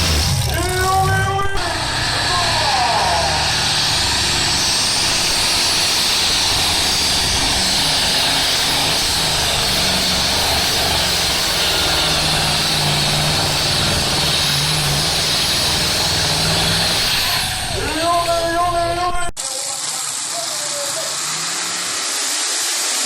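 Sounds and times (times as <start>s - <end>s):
tractor engines at full power: 0.0s - 23.0s.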